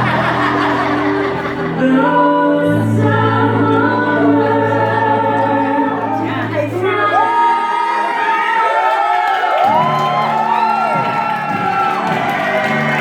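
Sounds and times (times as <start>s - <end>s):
group of voices singing: 0.0s - 8.0s.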